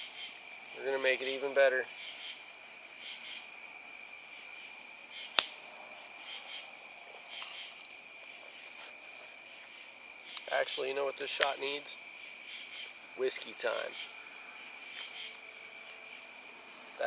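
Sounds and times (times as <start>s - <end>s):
crickets chirping: 0.0s - 17.0s
sharp snap: 5.4s - 5.6s.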